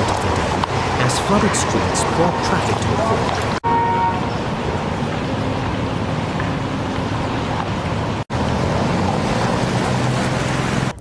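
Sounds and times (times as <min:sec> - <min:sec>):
floodwater rushing: 0:00.0 - 0:11.0
vehicle engines humming: 0:00.0 - 0:11.0.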